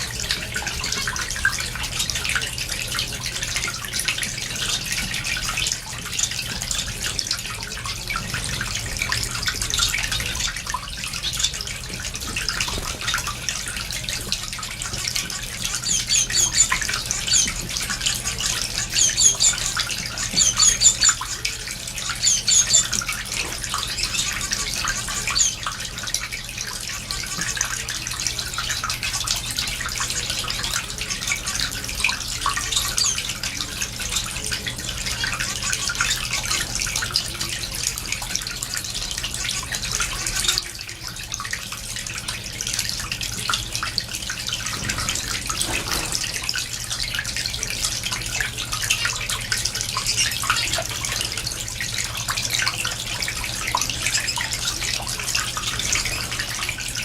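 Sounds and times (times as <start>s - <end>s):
finches chirping: 15.3s - 25.8s.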